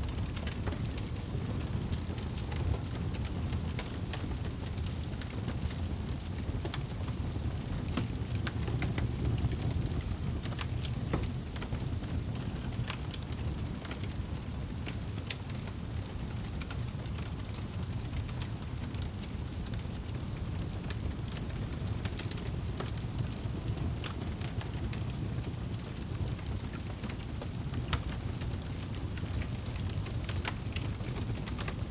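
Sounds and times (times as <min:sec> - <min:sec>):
sharp pops and snaps from fire: 0:00.0 - 0:31.9
wood fire crackling: 0:00.0 - 0:31.9.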